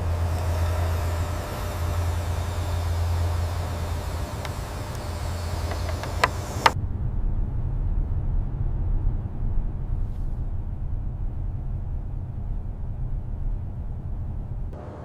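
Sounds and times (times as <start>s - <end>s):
sharp clicks: 0.0s - 6.8s
low rumble: 0.0s - 15.0s.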